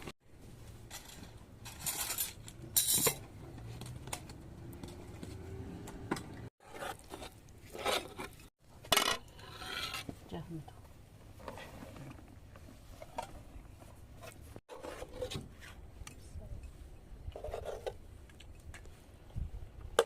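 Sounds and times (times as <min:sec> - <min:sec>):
hard objects clinking and clattering: 0:00.8 - 0:05.4.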